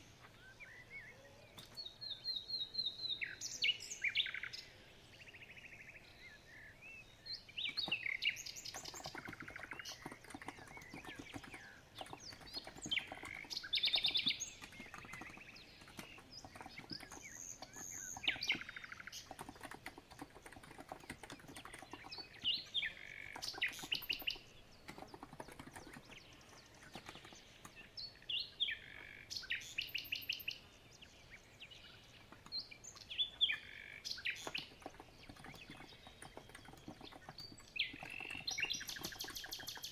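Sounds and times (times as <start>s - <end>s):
small birds chirping: 0.0s - 39.9s
keyboard typing: 7.7s - 27.9s, 34.4s - 39.9s.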